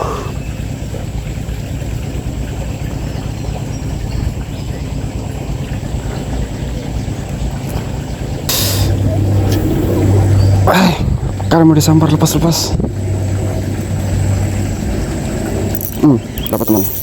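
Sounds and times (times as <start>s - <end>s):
low motor-like hum: 0.0s - 17.0s
brief hiss: 8.5s - 9.6s.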